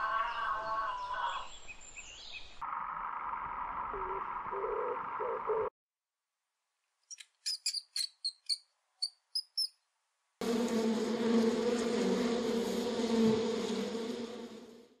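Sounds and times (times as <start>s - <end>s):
short high squeaks: 7.1s - 9.8s
honeybees buzzing: 10.4s - 15.0s.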